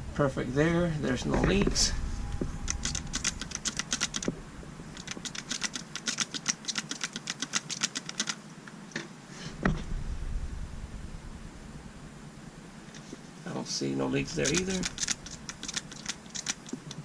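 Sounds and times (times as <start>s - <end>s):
rapid light clicking: 2.6s - 4.4s, 5.0s - 8.4s, 14.3s - 17.0s.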